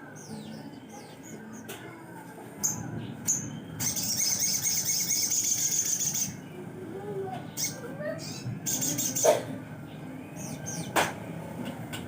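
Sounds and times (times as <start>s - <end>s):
bird chirping and trilling: 2.6s - 6.6s, 7.5s - 11.0s.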